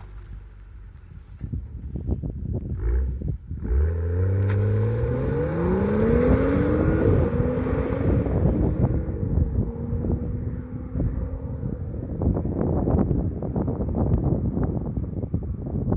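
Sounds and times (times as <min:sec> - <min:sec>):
car engine accelerating hard: 0:02.7 - 0:12.6.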